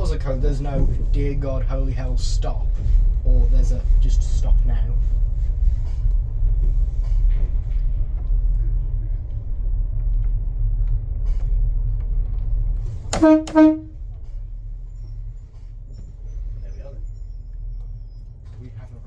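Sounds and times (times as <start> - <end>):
diesel train rumbling: 0.0 - 19.0
train horn toots: 13.1 - 14.0.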